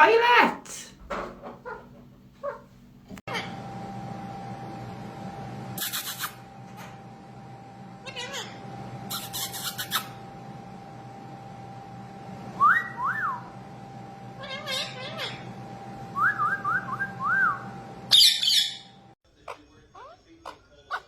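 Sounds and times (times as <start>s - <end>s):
parrot whistling: 8.1s - 10.2s, 12.6s - 13.5s, 16.2s - 19.0s.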